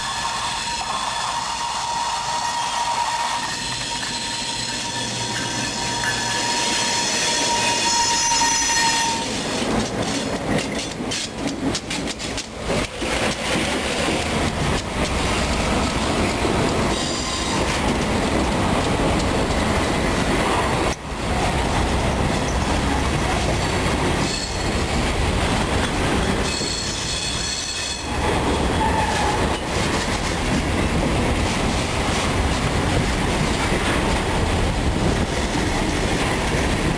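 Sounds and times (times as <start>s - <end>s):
train wheels squealing: 0.0s - 10.2s, 16.8s - 18.0s, 22.4s - 25.0s, 26.2s - 30.2s
wheels clicking over rail joints: 0.5s - 36.9s.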